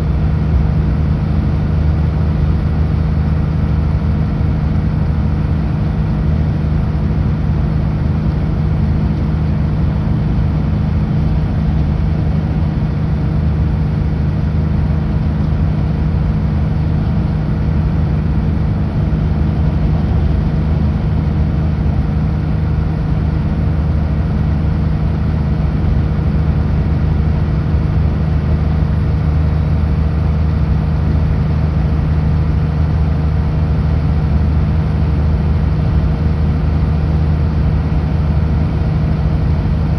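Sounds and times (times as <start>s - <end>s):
truck diesel engine droning: 0.0s - 39.9s.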